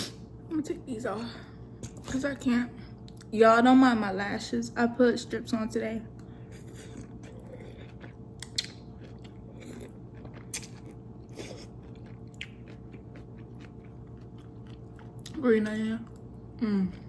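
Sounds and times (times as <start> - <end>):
person chewing crunchy food: 6.5 - 15.4.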